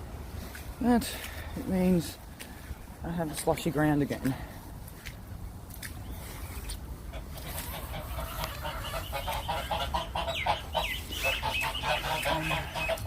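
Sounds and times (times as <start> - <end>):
chickens clucking: 6.6 - 13.0
high falling bird calls: 7.4 - 13.0.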